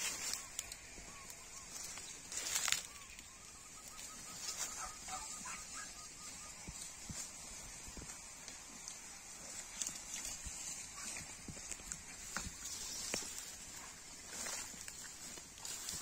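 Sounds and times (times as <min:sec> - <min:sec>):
leaves rustling: 0:00.0 - 0:16.0.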